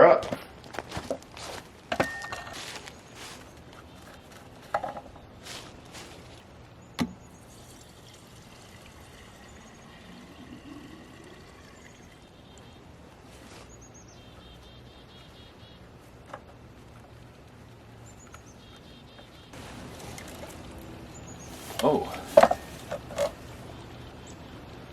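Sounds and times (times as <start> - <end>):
fuel trickling into tank: 2.6 - 13.1, 19.6 - 24.9.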